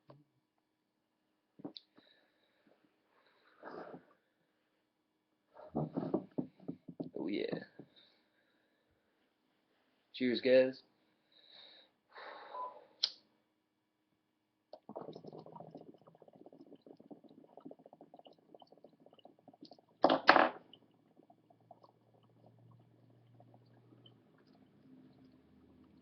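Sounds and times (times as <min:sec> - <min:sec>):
water bubbling in a bong: 0:14.8 - 0:26.0.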